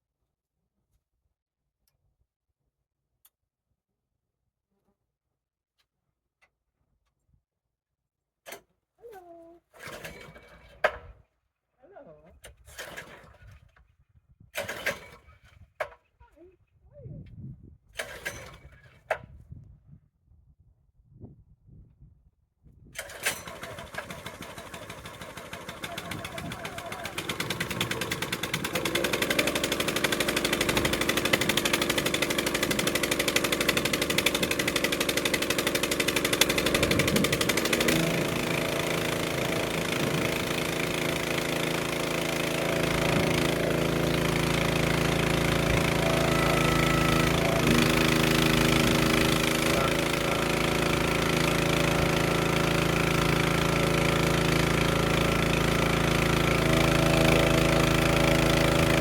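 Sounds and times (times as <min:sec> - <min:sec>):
small engine running with pulsing beat: 0:23.5 - 0:59.0.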